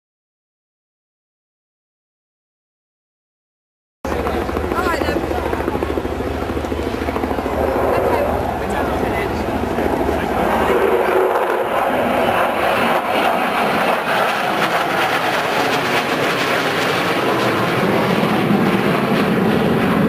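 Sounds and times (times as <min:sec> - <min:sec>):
aircraft engine roar: 0:04.1 - 0:20.0.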